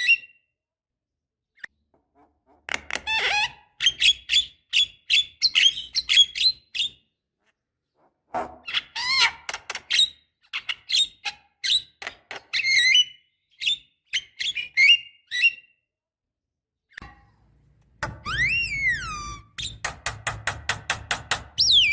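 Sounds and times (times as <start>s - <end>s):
bird chirping and whistling: 12.5s - 15.7s, 18.3s - 19.7s, 21.6s - 21.9s.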